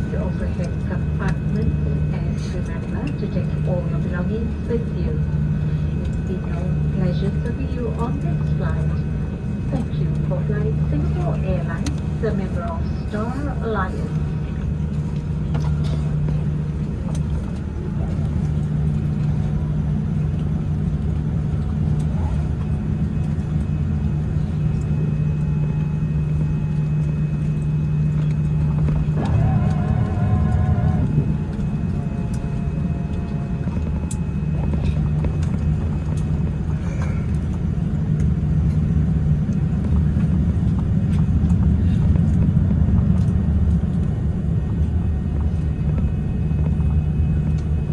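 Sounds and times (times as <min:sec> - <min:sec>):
aircraft cabin rumble: 0:00.0 - 0:47.9.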